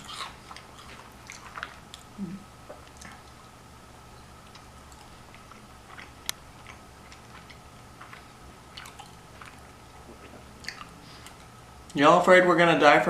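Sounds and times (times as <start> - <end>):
chewing crunchy snacks: 0.0 - 3.6, 4.4 - 12.0.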